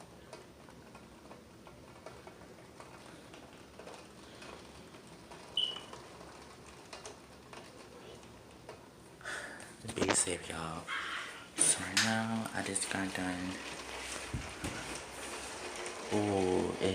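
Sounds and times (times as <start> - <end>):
heavy rain pouring: 11.3 - 16.9.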